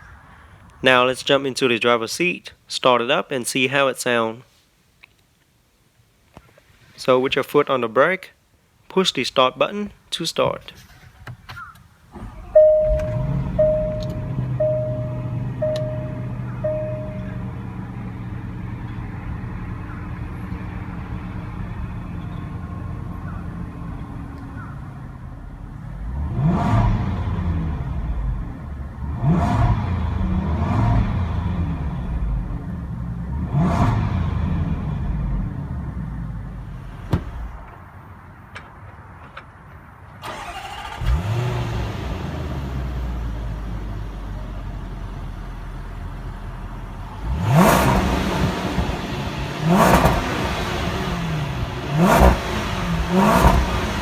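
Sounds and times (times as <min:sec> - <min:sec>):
car engine idling: 0:11.6 - 0:26.2, 0:42.8 - 0:54.0
car engine revving: 0:12.1 - 0:37.6, 0:47.0 - 0:54.0
dashboard chime beeps: 0:12.6 - 0:17.6.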